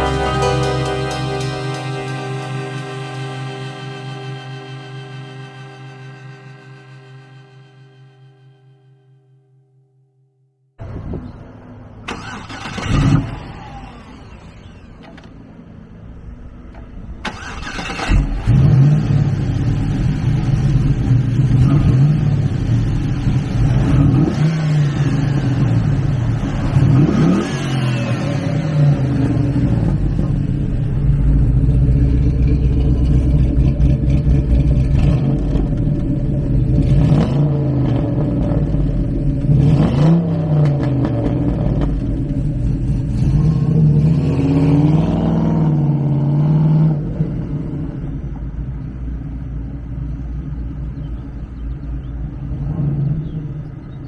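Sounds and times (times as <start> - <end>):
engine revving: 0.0 - 8.5, 12.1 - 15.3, 17.2 - 48.4
car engine cranking and starting: 12.0 - 15.6, 16.7 - 46.2
car engine idling: 12.1 - 44.2.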